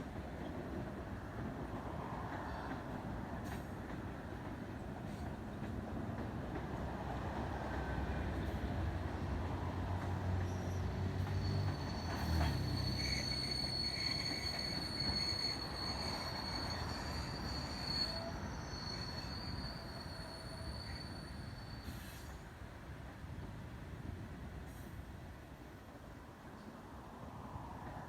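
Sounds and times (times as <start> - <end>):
train rolling along track: 0.0 - 28.0
high-pitched wheel squeal: 10.5 - 22.2.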